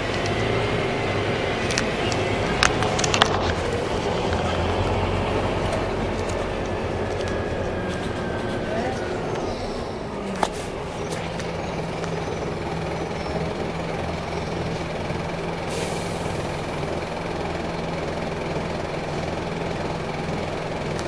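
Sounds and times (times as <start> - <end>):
bus engine idling: 0.0 - 21.0
compressed air hiss: 15.7 - 16.6.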